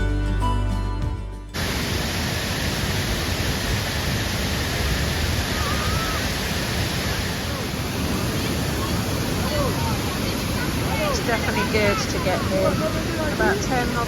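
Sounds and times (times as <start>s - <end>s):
background music: 0.0s - 1.6s
waterfall rushing: 1.6s - 14.0s.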